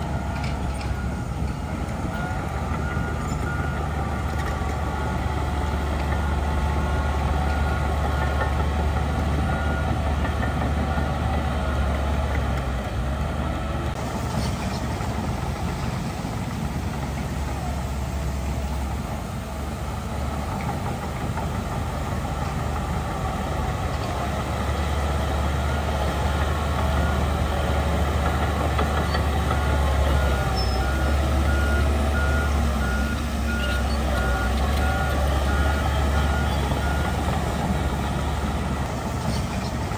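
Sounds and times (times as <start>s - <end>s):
diesel machinery engine drone: 0.0s - 39.9s
high reversing beep: 29.7s - 38.6s.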